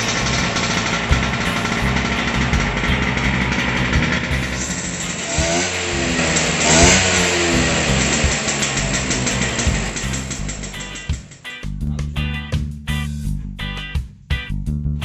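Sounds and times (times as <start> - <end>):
scooter engine revving: 0.0 - 11.5
background music: 0.0 - 15.0.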